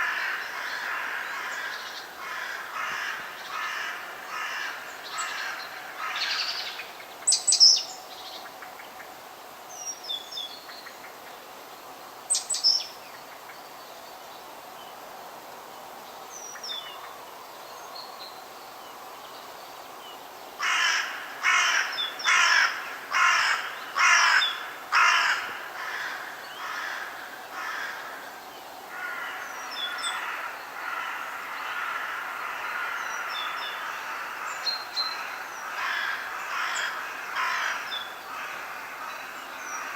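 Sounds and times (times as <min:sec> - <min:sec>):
high chirps of small birds: 0:05.0 - 0:08.5
loud bird calls: 0:20.6 - 0:39.9.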